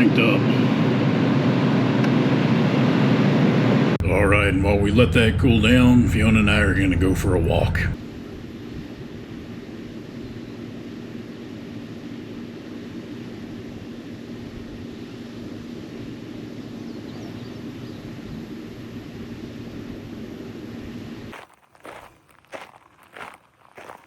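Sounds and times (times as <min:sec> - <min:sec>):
generator humming: 0:04.0 - 0:08.0.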